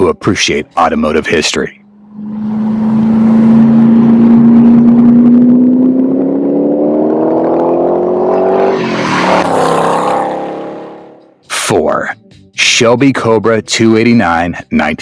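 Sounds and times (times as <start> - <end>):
car engine accelerating: 1.7 - 11.4.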